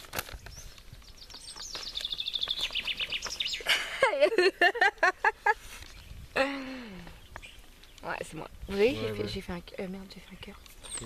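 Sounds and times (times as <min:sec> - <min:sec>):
songbird trilling: 0:00.5 - 0:03.7, 0:10.2 - 0:11.0.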